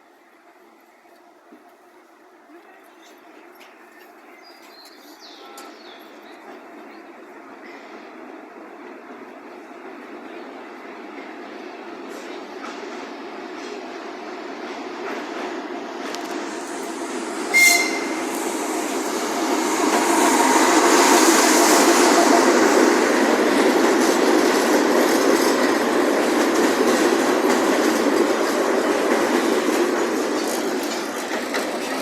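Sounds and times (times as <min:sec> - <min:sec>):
train wheels clattering on rails: 0:12.0 - 0:32.0
short high train horn toot: 0:17.5 - 0:18.3.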